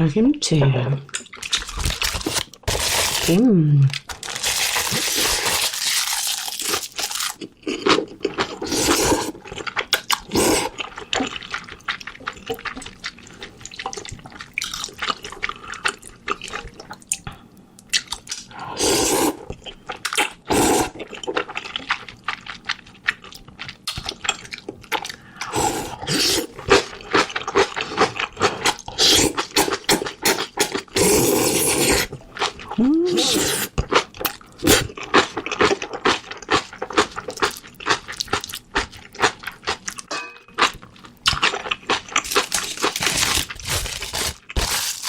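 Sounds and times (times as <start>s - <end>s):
wet mouth clicks and chewing: 21.4s - 25.2s.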